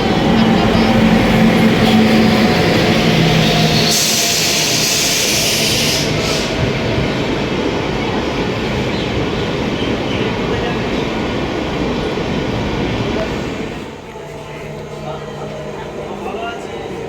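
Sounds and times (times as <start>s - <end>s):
train rumbling on rails: 0.0s - 17.0s
hiss: 3.6s - 6.8s.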